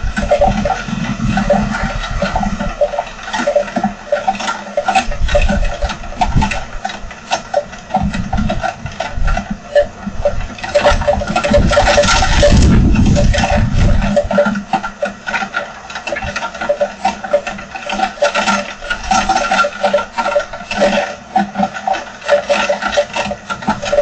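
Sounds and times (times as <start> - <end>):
heavy rain patter: 0.0 - 6.6, 7.5 - 18.3
wind gusts: 7.9 - 14.4.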